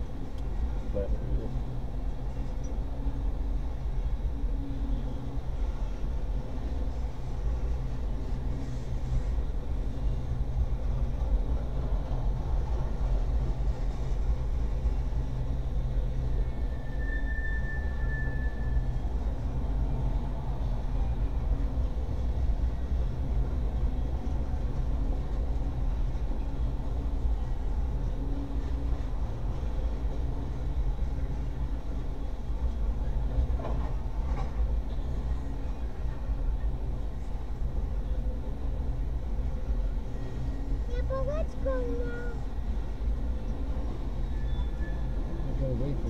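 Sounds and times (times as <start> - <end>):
steel wheels rumbling on rail: 0.0 - 46.0
train cars clanking: 33.1 - 35.2.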